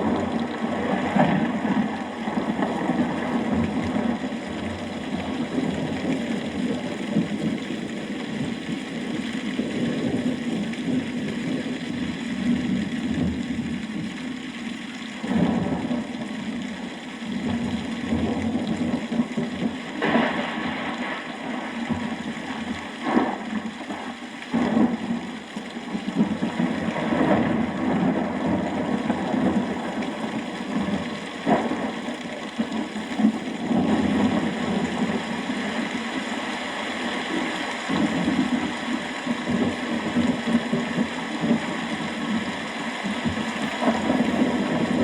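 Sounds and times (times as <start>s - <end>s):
thunder rumbling: 0.0s - 14.1s, 15.2s - 45.0s
heavy rain: 0.0s - 45.0s
sharp thunder cracks: 20.0s - 22.1s.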